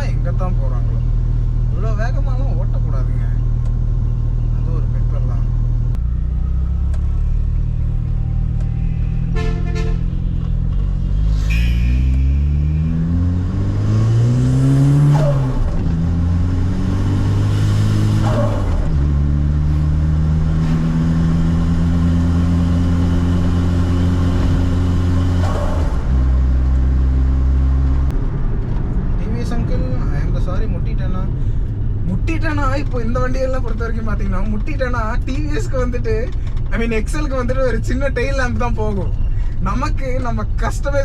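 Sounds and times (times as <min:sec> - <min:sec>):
car engine accelerating: 0:03.2 - 0:30.2.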